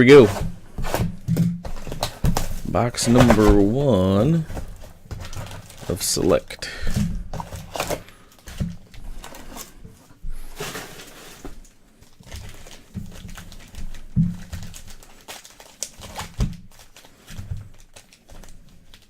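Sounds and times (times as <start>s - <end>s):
cardboard and wrapping rustling: 0.0s - 19.0s.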